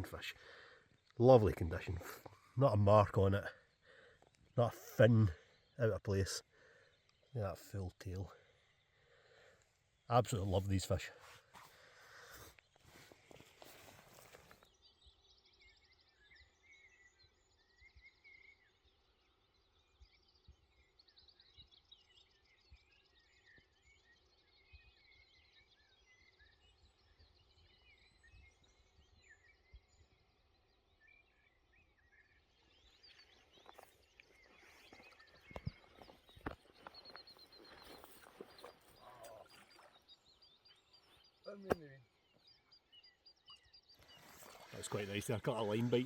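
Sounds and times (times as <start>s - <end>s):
small birds chirping and trilling: 0.0s - 46.0s.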